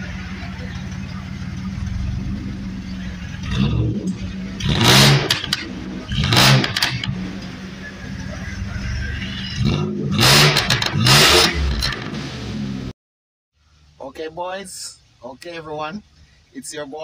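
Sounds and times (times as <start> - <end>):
van engine idling and revving: 0.0 - 13.0.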